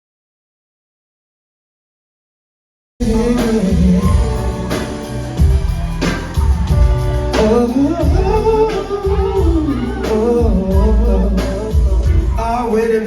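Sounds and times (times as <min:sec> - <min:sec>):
live band music: 0:03.0 - 0:13.0
person singing: 0:03.0 - 0:13.0.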